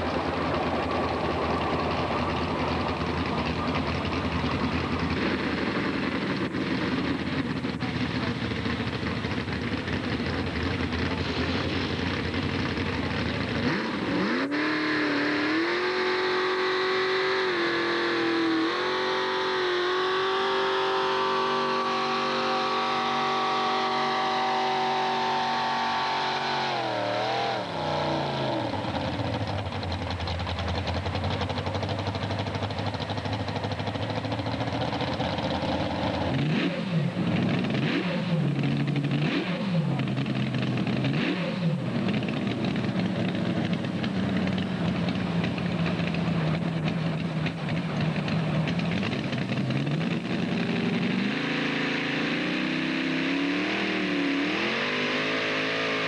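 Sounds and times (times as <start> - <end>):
tractor engine revving hard: 10.4 - 29.8, 33.6 - 56.0.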